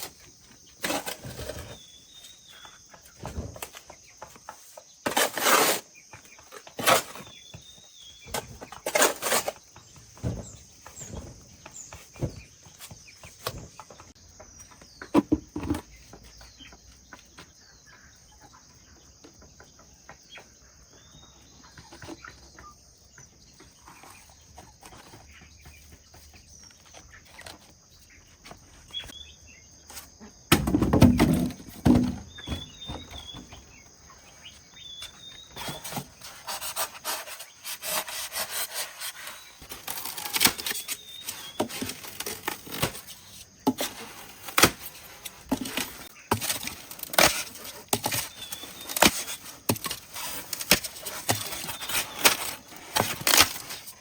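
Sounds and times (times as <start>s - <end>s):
birds chirping: 0.0s - 54.0s
knocks and thuds of handwork: 30.5s - 33.5s.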